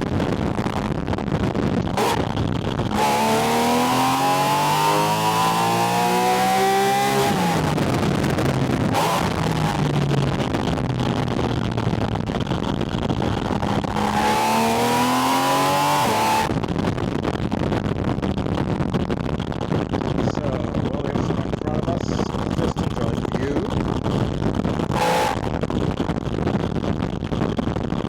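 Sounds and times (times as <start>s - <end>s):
wind noise: 0.0s - 28.0s
car engine revving: 0.1s - 16.6s, 21.2s - 25.7s.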